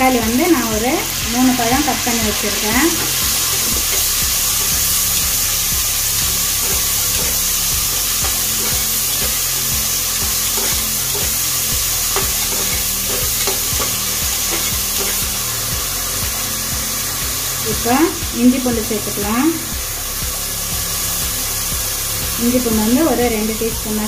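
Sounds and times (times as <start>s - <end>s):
vegetables sizzling in oil: 0.0s - 24.0s
metal ladle scraping a pot: 2.8s - 15.3s.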